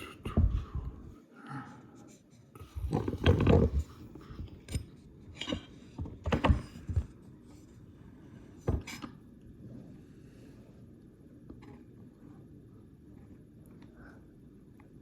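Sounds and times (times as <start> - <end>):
objects knocking and clattering: 2.8 - 7.2, 8.6 - 9.2.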